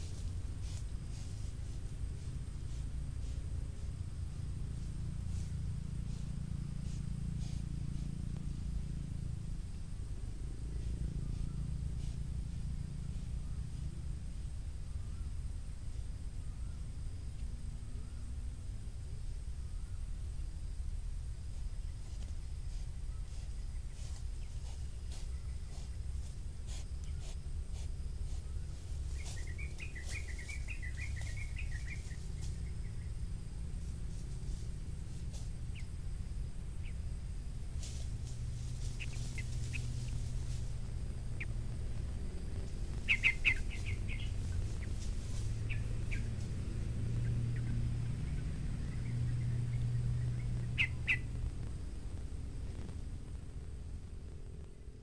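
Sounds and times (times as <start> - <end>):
low outdoor rumble: 0.0 - 55.0
birds chirping: 21.8 - 33.3, 35.7 - 35.9, 38.1 - 52.0.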